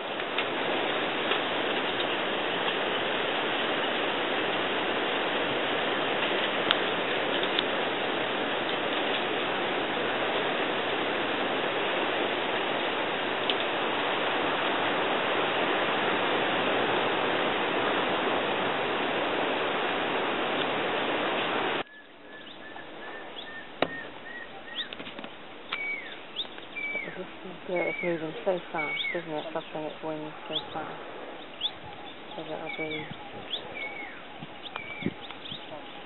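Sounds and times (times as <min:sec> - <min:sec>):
high gliding calls: 0:21.8 - 0:36.0
bird chirping: 0:21.9 - 0:36.0.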